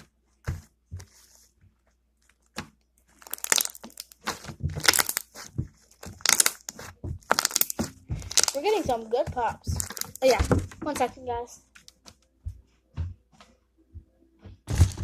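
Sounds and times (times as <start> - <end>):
slime popping and crackling: 3.1 - 10.6.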